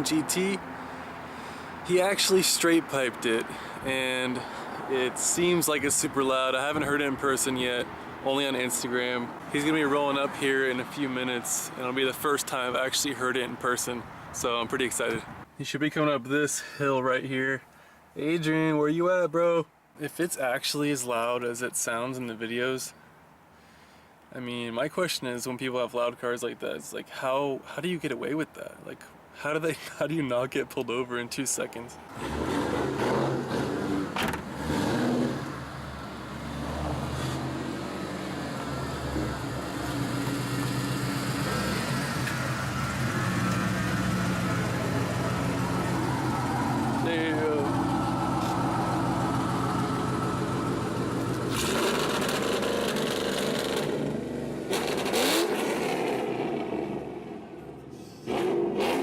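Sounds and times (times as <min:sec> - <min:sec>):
car engine droning: 0:32.1 - 0:59.0.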